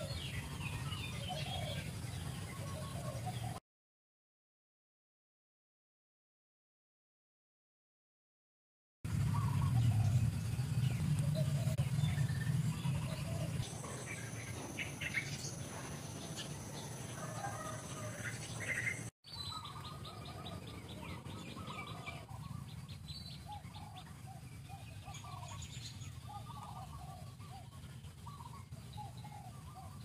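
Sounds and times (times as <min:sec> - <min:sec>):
wild birds chirping: 0:00.0 - 0:03.6, 0:09.1 - 0:30.0
low background rumble: 0:09.1 - 0:30.0
rapid ticking bird trill: 0:09.2 - 0:30.0.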